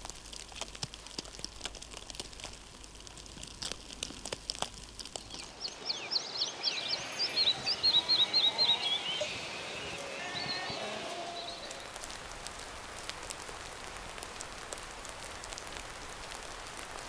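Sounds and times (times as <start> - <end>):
faint crackling clicks: 0.0 - 6.2, 10.7 - 17.0
bird chirping high notes: 5.8 - 12.0.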